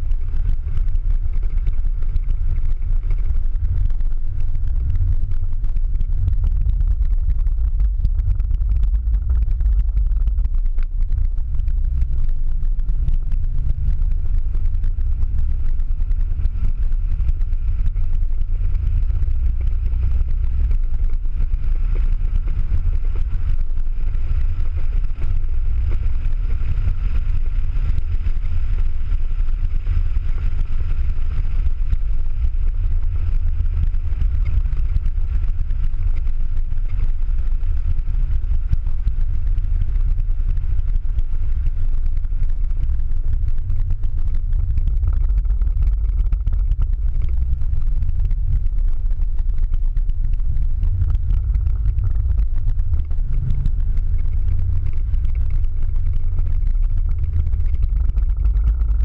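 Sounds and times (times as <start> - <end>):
car engine drone from inside: 0.0 - 59.0
road noise: 38.1 - 59.0.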